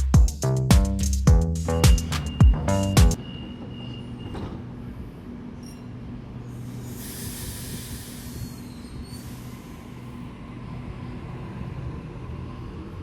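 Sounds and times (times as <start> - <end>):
electric train humming: 1.6 - 3.2
faint high squeal: 2.0 - 4.6, 5.6 - 6.0, 8.0 - 9.6
hiss: 6.7 - 10.0.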